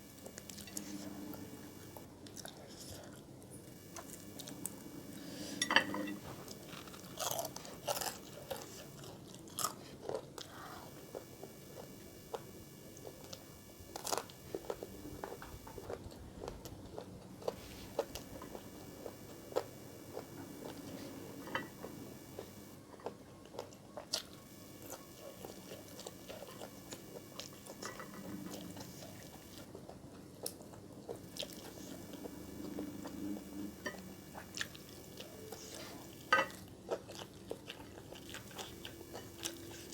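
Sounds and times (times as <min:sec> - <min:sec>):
person chewing crunchy food: 0:06.1 - 0:09.8.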